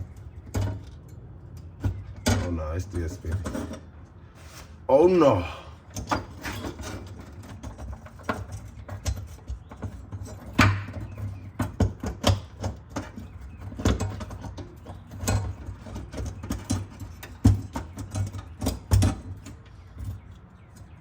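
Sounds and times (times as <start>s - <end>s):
hand tools clicking and knocking: 5.4s - 21.0s.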